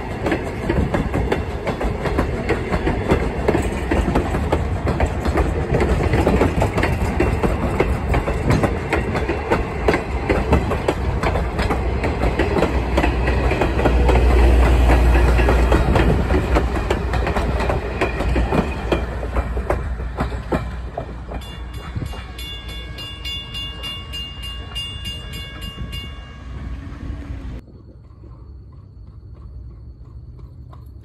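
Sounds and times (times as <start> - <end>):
train wheels clicking over rail joints: 0.0 - 27.3
low train rumble: 0.0 - 31.0
fast even ringing: 21.4 - 26.8.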